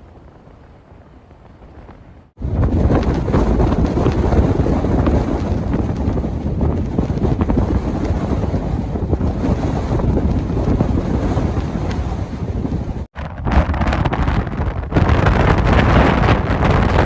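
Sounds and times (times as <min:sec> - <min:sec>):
blizzard wind buffeting microphone: 0:00.0 - 0:17.0.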